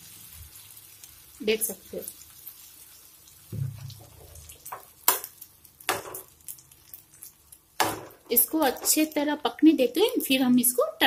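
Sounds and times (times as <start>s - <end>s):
pancakes sizzling in a pan: 0.0s - 10.8s
dull thump: 3.5s - 4.0s.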